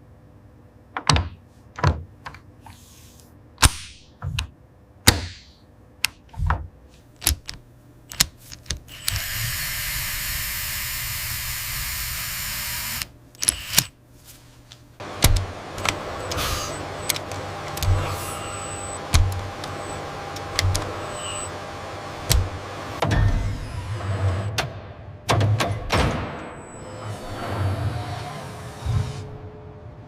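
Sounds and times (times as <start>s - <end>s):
sharp mechanical clicks: 7.2s - 9.5s, 12.7s - 13.9s
compressed air hissing: 16.3s - 16.8s.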